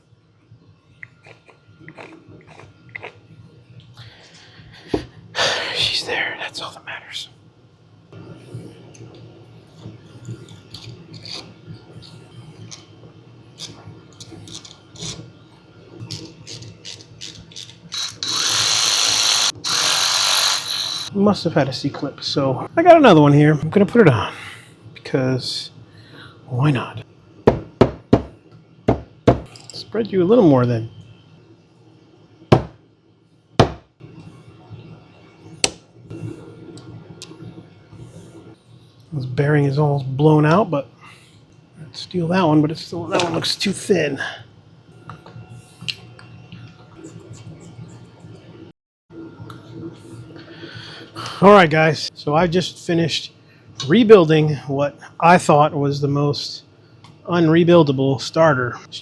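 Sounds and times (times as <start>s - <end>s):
loud rasping noise: 17.9s - 21.1s.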